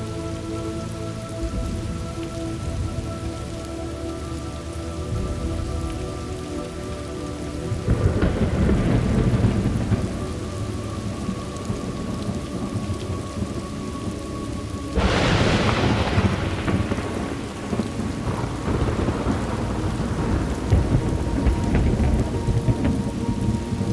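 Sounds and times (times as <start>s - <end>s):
steady rain falling: 0.0s - 23.9s
thunder rumbling: 0.0s - 23.9s
sharp thunderclap: 7.9s - 10.4s, 15.0s - 23.9s.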